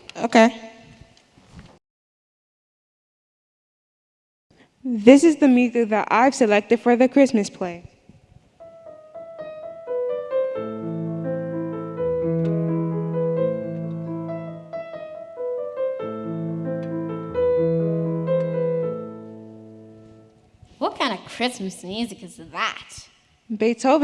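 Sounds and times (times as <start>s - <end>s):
piano music: 8.6s - 20.6s.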